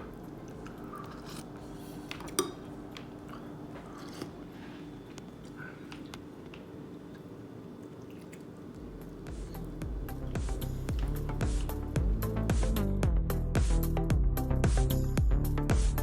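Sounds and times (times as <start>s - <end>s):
person chewing and eating soup: 0.0s - 12.1s.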